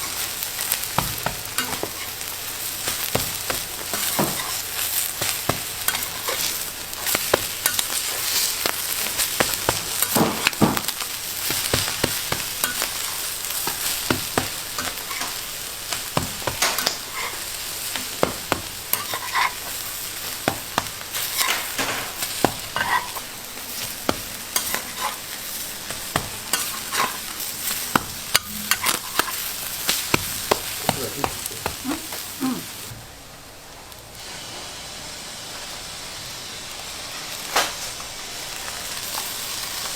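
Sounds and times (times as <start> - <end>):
metal utensils scraping a pan: 0.0 - 31.6
food sizzling in a pan: 0.0 - 39.9.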